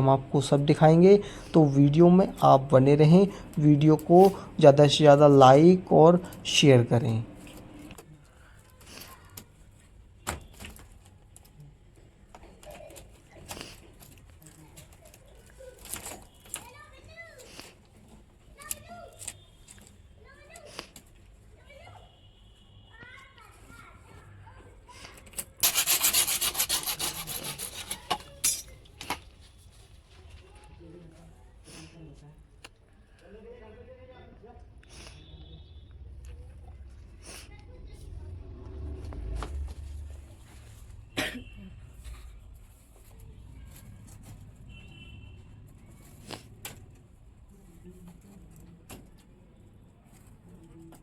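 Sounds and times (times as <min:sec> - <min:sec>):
hand tool rasping: 0:25.4 - 0:28.7
low background rumble: 0:35.9 - 0:43.7.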